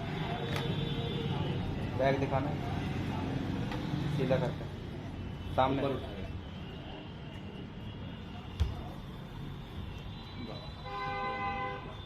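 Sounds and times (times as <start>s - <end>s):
background noise: 0.0s - 12.0s
vehicle horn honk: 10.2s - 12.0s.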